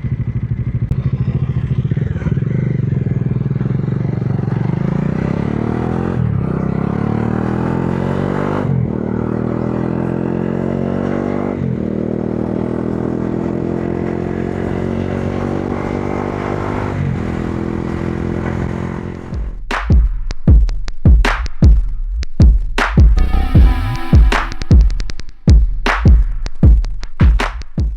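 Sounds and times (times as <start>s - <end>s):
motorcycle engine accelerating: 0.0s - 19.4s.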